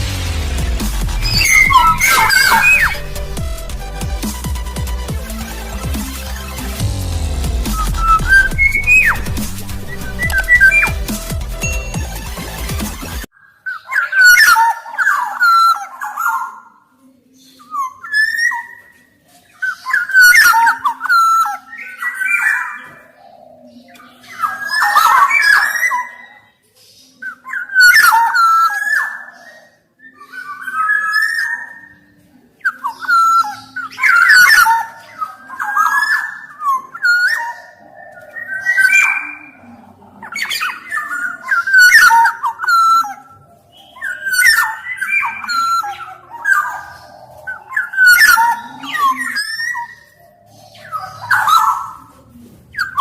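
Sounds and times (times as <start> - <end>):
bird singing fluting whistles: 1.1 - 4.6, 7.7 - 11.9, 32.6 - 39.6, 40.4 - 50.1.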